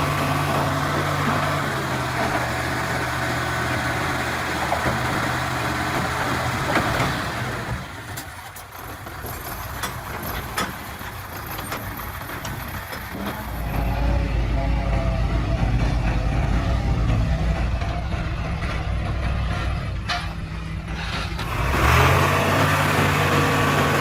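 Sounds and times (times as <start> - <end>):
bulldozer diesel engine running: 0.0 - 24.0
sharp clicks and clanks: 5.9 - 13.6.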